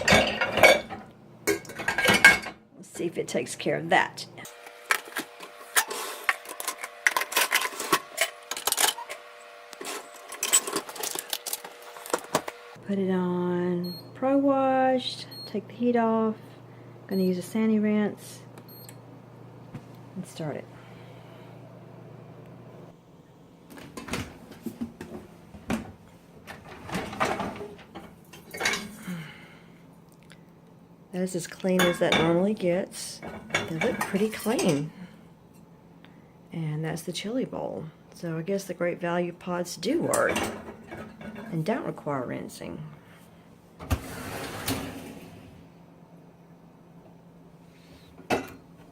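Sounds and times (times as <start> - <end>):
dishes clinking in dishwasher racks: 0.0 - 2.6, 26.5 - 29.0, 31.8 - 32.5, 33.2 - 34.9, 40.1 - 41.6
dishwasher hum: 0.0 - 29.8, 31.1 - 35.7, 36.8 - 48.9
dishwasher door and racks rattling: 25.6 - 28.8, 40.2 - 41.5, 43.8 - 45.6.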